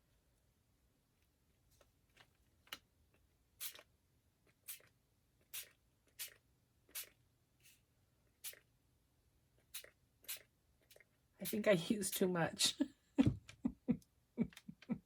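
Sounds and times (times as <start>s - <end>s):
spray bottle hisses: 3.6s - 3.8s, 4.7s - 4.9s, 5.5s - 7.8s, 8.4s - 8.6s, 9.7s - 11.0s.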